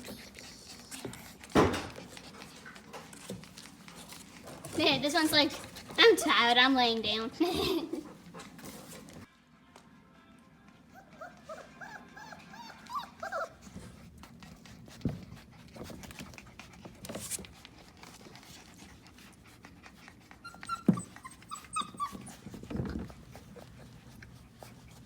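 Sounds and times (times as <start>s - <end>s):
puppies whimpering and yelping: 10.8s - 25.0s.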